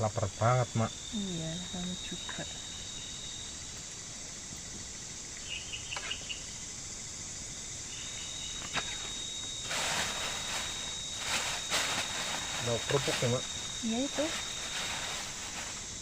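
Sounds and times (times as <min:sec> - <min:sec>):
forest insects chorus: 0:00.0 - 0:16.0
rustling noise: 0:08.7 - 0:16.0.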